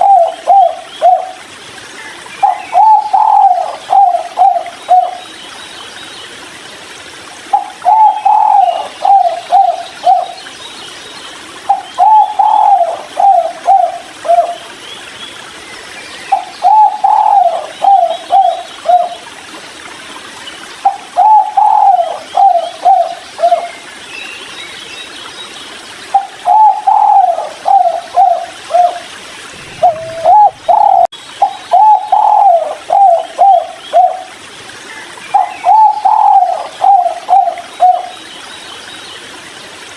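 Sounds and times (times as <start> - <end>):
dove cooing: 0.0 - 1.4, 2.4 - 5.2, 7.5 - 10.4, 11.7 - 14.6, 16.3 - 19.2, 21.2 - 23.7, 26.2 - 34.3, 35.4 - 38.1.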